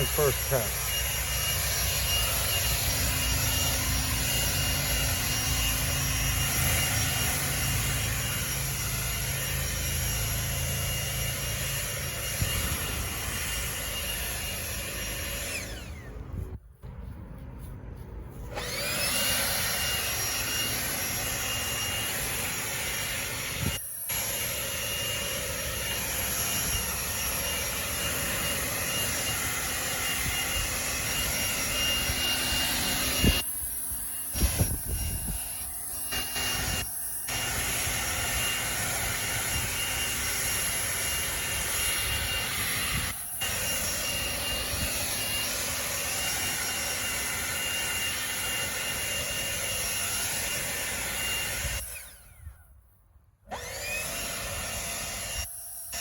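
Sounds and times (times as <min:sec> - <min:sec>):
leaf blower whining: 0:00.0 - 0:56.0.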